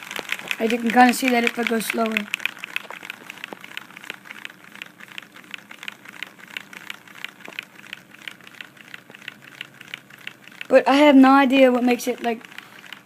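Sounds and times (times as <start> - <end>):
plastic model engine clicking: 0.0 - 13.0.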